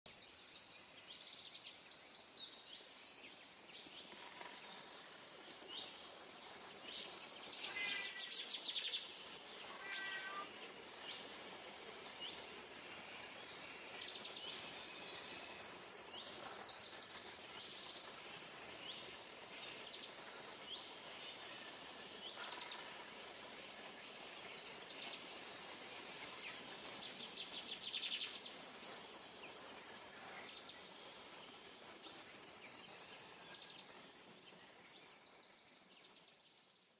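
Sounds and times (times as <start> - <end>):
steady background hiss: 0.1 - 36.9
birds calling and trilling: 4.0 - 31.0.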